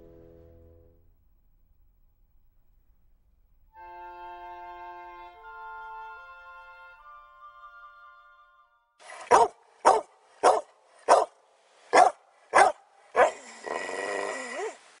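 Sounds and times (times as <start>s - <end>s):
dog barking: 9.1s - 13.8s.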